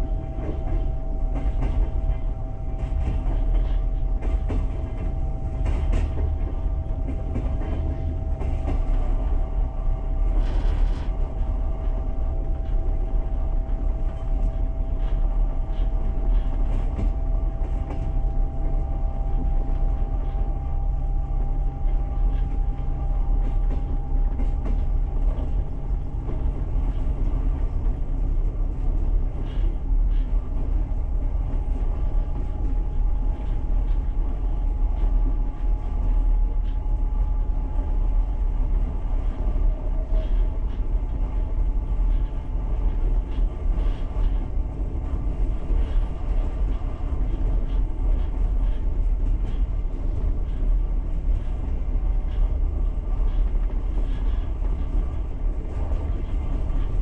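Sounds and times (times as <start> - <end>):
train rumbling on track: 0.0 - 57.0.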